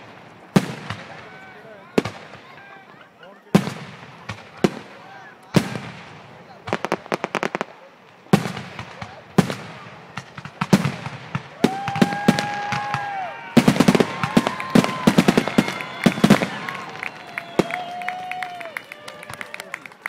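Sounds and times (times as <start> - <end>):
fireworks booming and crackling: 0.0 - 18.5.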